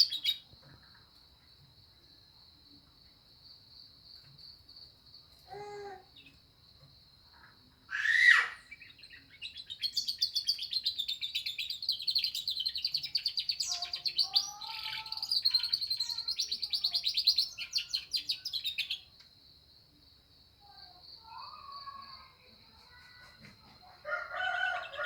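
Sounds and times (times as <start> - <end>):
canary singing trills: 0.0 - 0.6, 7.9 - 19.1, 21.2 - 25.0.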